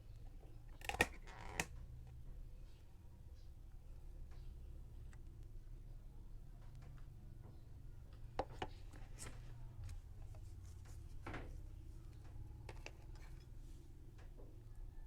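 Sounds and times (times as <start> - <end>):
low steady hum: 0.0 - 15.0
soft rub: 8.8 - 12.2.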